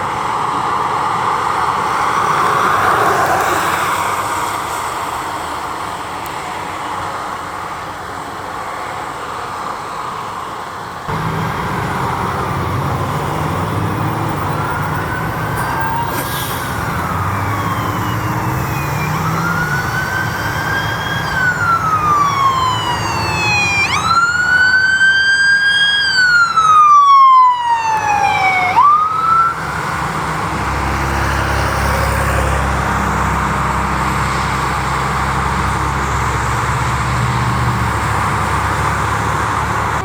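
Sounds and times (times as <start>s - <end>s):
vehicle road noise: 0.0s - 40.0s
emergency siren wailing: 11.1s - 40.0s.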